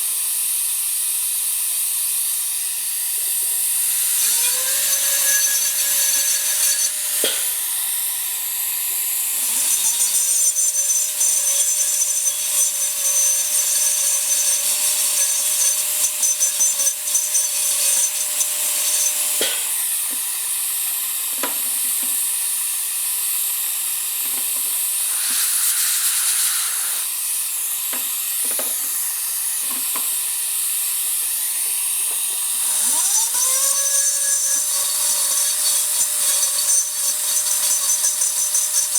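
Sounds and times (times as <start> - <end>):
dental drill whine: 0.0 - 38.9
air hiss: 24.8 - 27.4.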